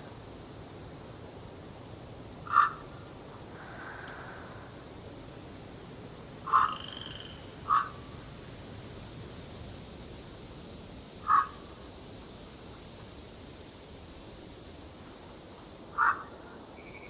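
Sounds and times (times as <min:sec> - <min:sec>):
forest ambience hiss: 0:00.0 - 0:17.0
loud animal calls: 0:02.4 - 0:02.9, 0:06.4 - 0:08.0, 0:11.2 - 0:11.6, 0:15.9 - 0:16.4
faint high whistle: 0:16.8 - 0:17.0.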